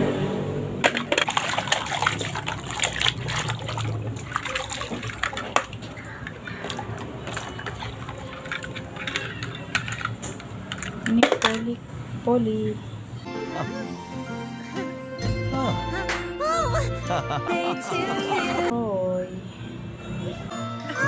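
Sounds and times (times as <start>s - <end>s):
water running and splashing: 0.8s - 10.2s.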